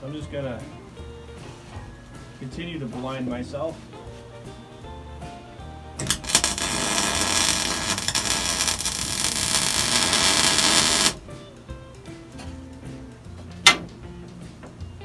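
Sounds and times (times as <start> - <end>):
welding arc crackling hiss: 6.0 - 11.2.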